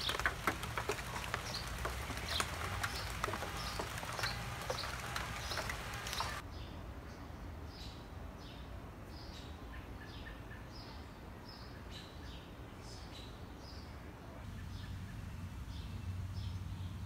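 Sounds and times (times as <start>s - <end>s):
low steady background rumble: 12.8s - 17.0s.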